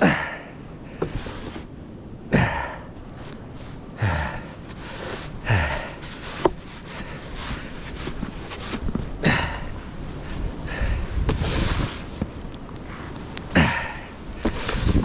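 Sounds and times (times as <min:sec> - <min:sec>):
snow shovel scooping snow: 0:01.0 - 0:01.7, 0:03.5 - 0:09.1, 0:11.3 - 0:13.1, 0:14.4 - 0:15.0
hard breathing: 0:02.3 - 0:15.0.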